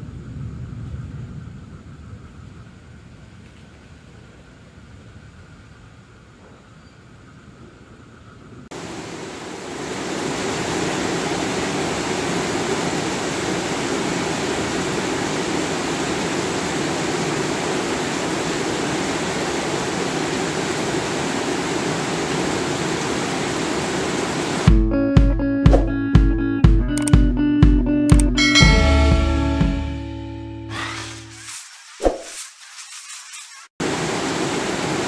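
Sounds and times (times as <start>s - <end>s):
heavy rain pouring: 8.7s - 24.7s, 30.7s - 35.0s.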